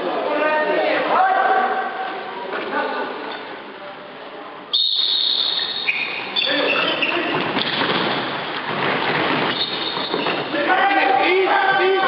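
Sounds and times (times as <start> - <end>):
sports hall noise: 0.0 - 12.0
referee's whistle: 4.7 - 7.1, 9.5 - 10.4.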